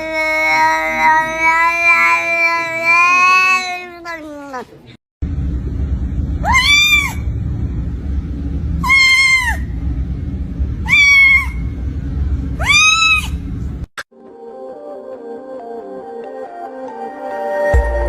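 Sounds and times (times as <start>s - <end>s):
cat meowing: 0.0s - 4.8s
steady low rumble: 5.2s - 13.9s.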